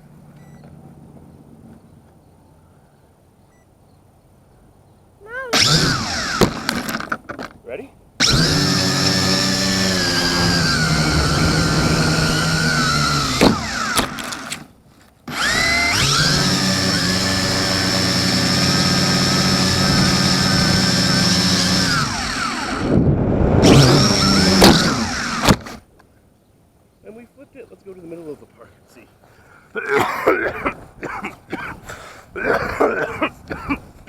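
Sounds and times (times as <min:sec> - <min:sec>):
quadcopter motors whining: 0:05.4 - 0:07.0, 0:08.2 - 0:14.7, 0:15.3 - 0:25.8
drone crash knock: 0:10.2 - 0:14.2.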